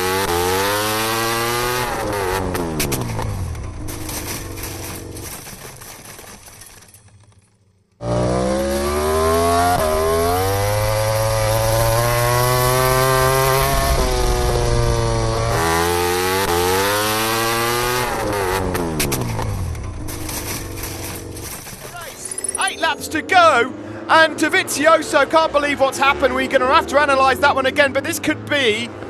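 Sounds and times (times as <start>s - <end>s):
racing motorcycle engine at high revs: 0.0s - 5.9s, 8.0s - 22.0s.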